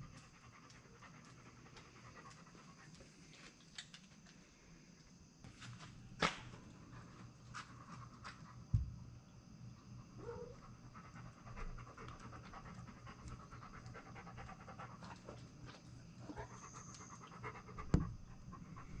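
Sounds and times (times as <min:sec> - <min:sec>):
rhythmic panting breaths: 0:00.0 - 0:03.6, 0:10.0 - 0:19.0.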